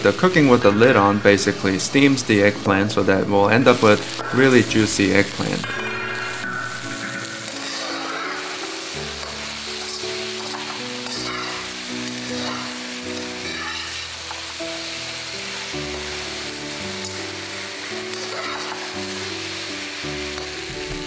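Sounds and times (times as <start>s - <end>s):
background music: 0.0s - 21.0s
eggplant sizzling in a wok: 0.0s - 21.0s
metal spatula stirring: 3.9s - 14.8s.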